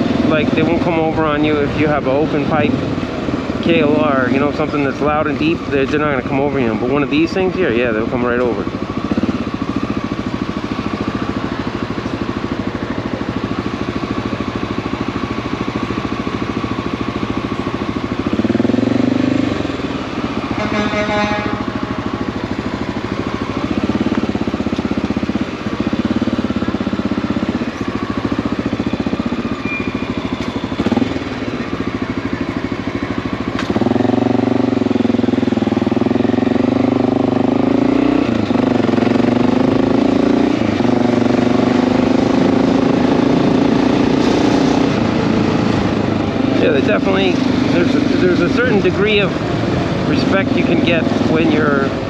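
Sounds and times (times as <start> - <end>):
motorcycle engine revving: 0.0 - 52.0
brief pitched tone: 29.6 - 30.7.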